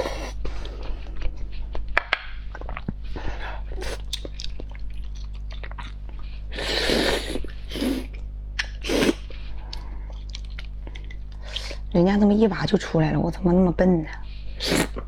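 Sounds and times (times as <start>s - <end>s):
chewing on a bone: 3.7s - 8.8s, 9.6s - 11.8s.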